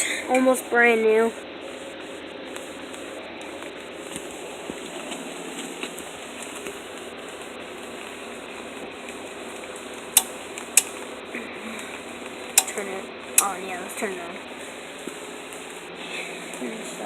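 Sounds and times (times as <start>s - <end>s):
rain falling: 0.0s - 17.0s
sharp clicks: 10.2s - 11.1s, 12.6s - 12.8s, 13.4s - 13.6s.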